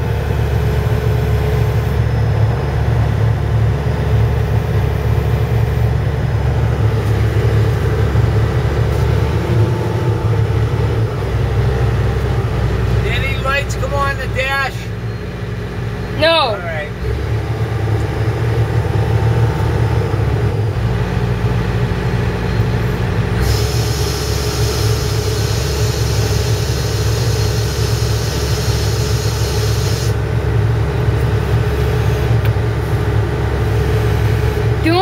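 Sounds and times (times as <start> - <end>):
excavator diesel engine running: 0.0 - 35.0
loud hiss: 23.4 - 30.2.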